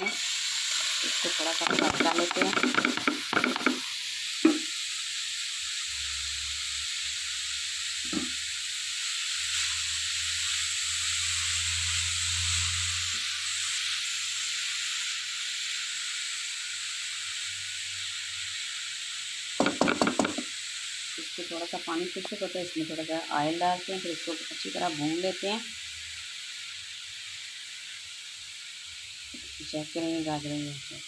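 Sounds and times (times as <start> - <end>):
carrots sizzling in a pan: 0.0 - 31.0
spatula knocking against pan: 1.6 - 3.8, 19.6 - 20.5.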